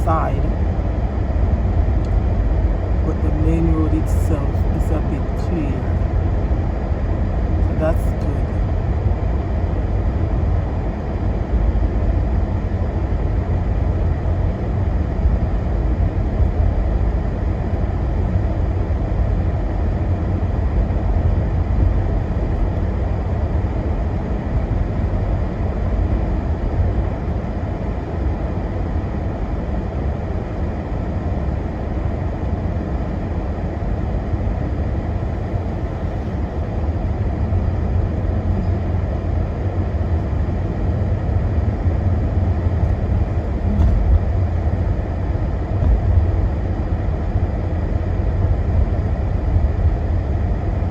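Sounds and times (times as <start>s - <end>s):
car cabin road rumble: 35.3s - 40.8s, 41.4s - 50.1s.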